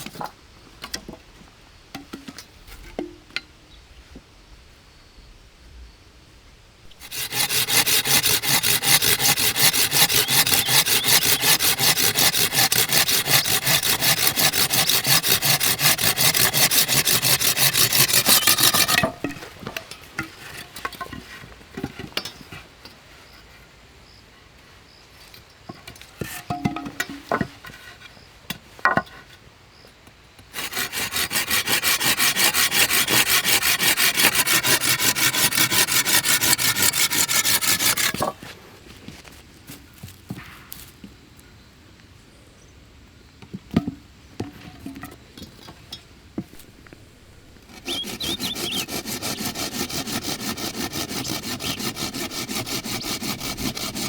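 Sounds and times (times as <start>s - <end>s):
hand saw cutting wood: 6.9s - 21.4s, 30.5s - 38.5s, 46.5s - 54.0s.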